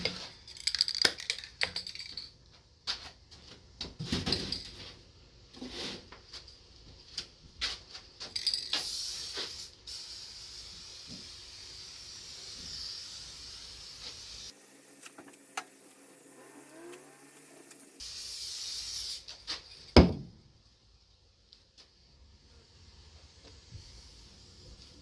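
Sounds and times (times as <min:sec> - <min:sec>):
aerosol can spraying: 0:08.4 - 0:19.3.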